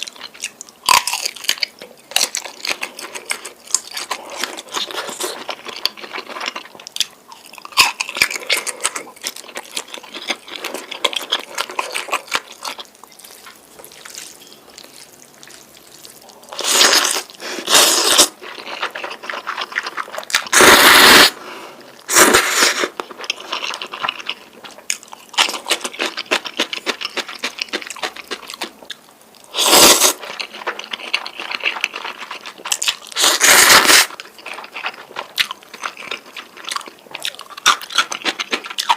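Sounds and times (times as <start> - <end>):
wet chewing and mouth clicks: 0.0 - 20.6, 22.9 - 38.9
noodle slurps: 20.4 - 21.4, 29.5 - 30.3, 33.2 - 34.2.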